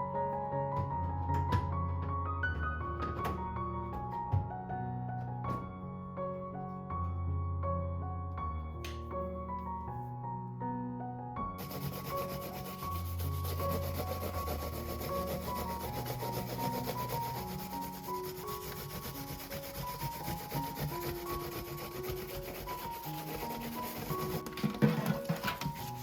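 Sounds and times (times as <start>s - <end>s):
soft piano music: 0.0s - 26.0s
rapid scrubbing strokes: 11.6s - 26.0s.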